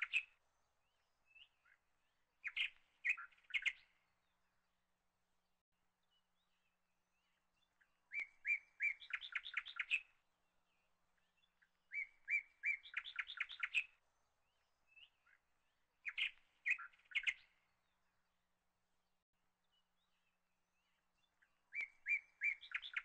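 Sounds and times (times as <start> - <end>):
songbird whistling and trilling: 0.0 - 0.3, 2.4 - 3.9, 8.1 - 10.1, 11.9 - 14.0, 16.0 - 17.6, 21.7 - 23.0.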